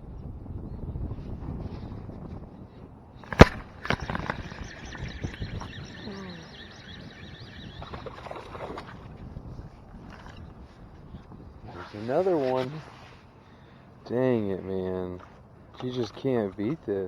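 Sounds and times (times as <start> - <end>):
sharp click: 3.2 - 5.8.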